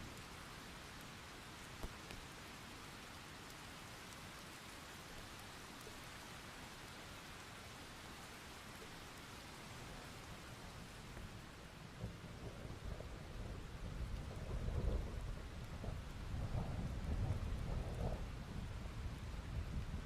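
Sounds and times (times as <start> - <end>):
steady rain: 0.0 - 20.0
distant thunder rumble: 11.9 - 20.0.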